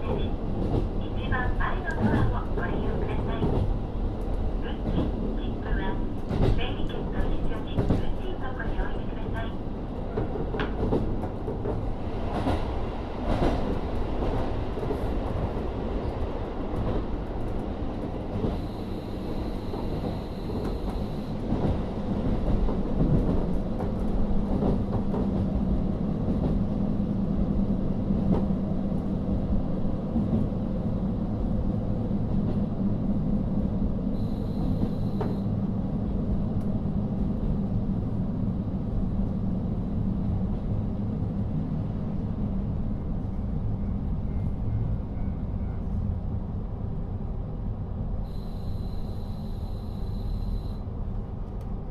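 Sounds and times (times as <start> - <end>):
train rolling noise: 0.0 - 51.9
diesel railcar engine droning: 15.4 - 51.9.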